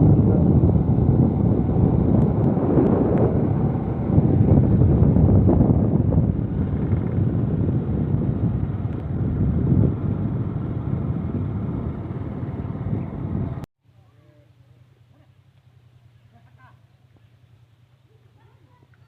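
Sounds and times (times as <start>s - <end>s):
vehicle running: 0.0s - 13.7s
wind buffeting microphone: 0.0s - 13.7s.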